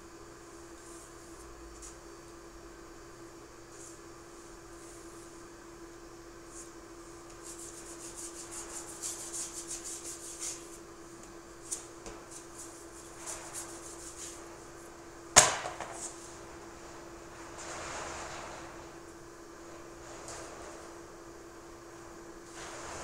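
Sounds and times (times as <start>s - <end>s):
steady low hum: 0.0s - 23.0s
spreader scraping body filler: 6.5s - 10.9s, 11.6s - 23.0s.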